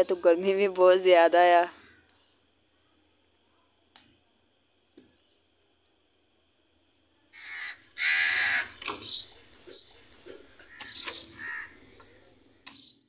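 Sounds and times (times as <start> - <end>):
bird harsh calls: 7.4 - 12.0.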